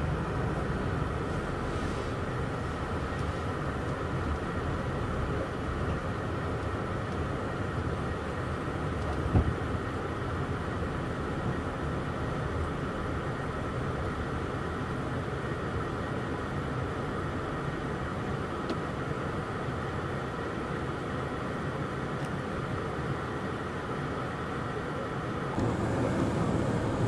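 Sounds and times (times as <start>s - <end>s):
train rumble and hiss: 0.0s - 3.9s, 22.8s - 27.0s.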